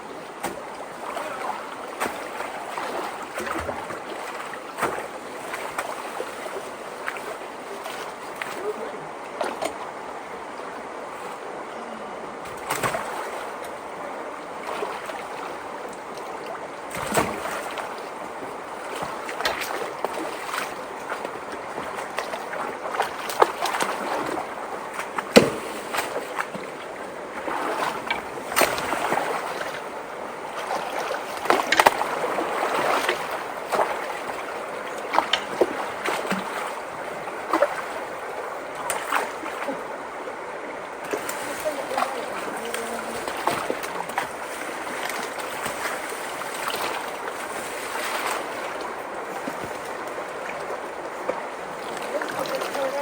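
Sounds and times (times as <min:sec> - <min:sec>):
creek water rushing: 0:00.0 - 0:53.0
debris splashing and knocking: 0:25.3 - 0:26.2.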